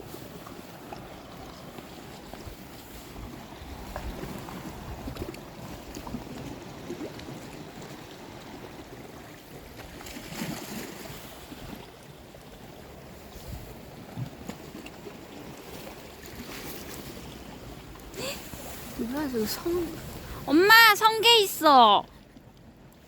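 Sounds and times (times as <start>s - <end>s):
wind rumbling on microphone: 0.0s - 9.7s, 13.1s - 14.6s, 15.6s - 20.5s
sea water lapping at shore: 0.0s - 23.0s.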